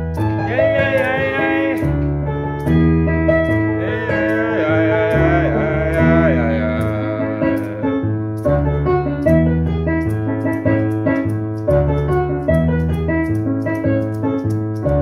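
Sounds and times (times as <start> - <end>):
electric keyboard chords: 0.0 - 15.0
ticking percussion beat: 0.1 - 15.0.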